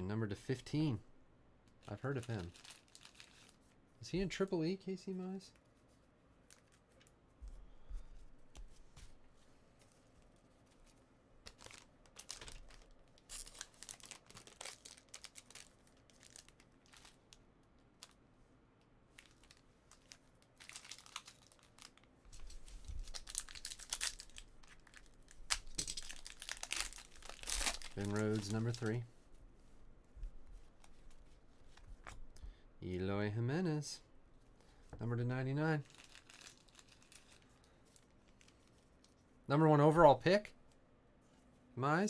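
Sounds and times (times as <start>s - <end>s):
card pack wrappers tearing and crinkling: 1.9s - 3.6s, 11.5s - 17.3s, 19.2s - 29.0s, 35.8s - 38.8s
cards being handled: 22.3s - 29.2s, 30.2s - 32.5s.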